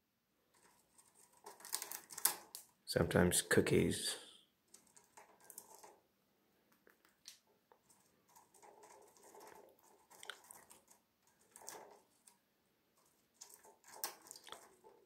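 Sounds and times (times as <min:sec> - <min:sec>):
bird beak cracking a peanut: 0:01.4 - 0:02.7.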